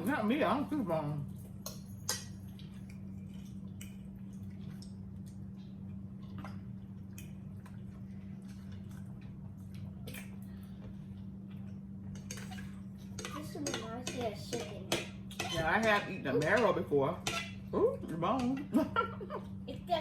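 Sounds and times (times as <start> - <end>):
steady low hum: 0.0 - 20.0
wet chewing sounds: 1.3 - 15.6.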